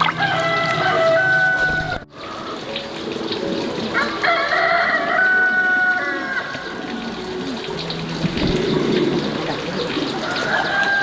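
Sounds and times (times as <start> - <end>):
rooster crowing: 0.0 - 2.0, 4.0 - 6.5, 10.2 - 11.0
running water: 0.0 - 11.0.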